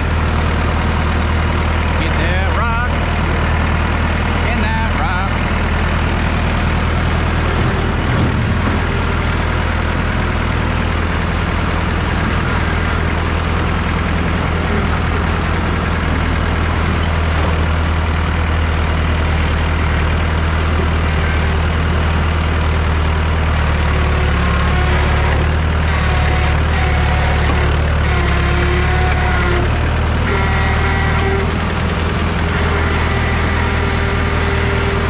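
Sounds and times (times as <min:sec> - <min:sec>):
tractor engine running: 0:00.0 - 0:35.0.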